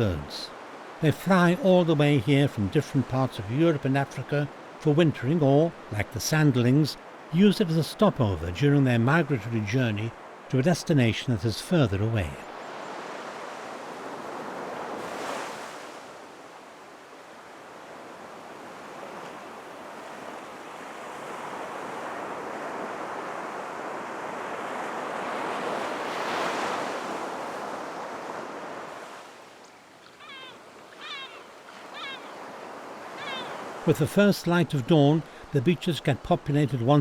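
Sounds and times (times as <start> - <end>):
surf breaking on a beach: 0.0 - 29.7, 30.6 - 37.0
short high bird calls: 30.0 - 33.8.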